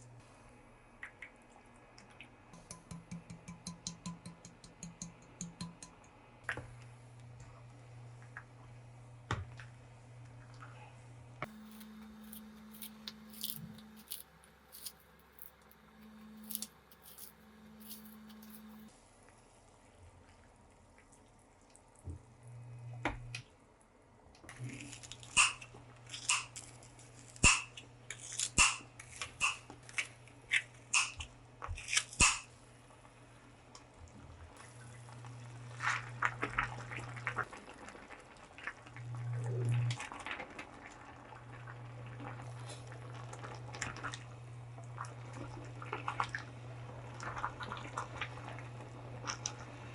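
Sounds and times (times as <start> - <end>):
steady low hum: 2.6 - 18.9.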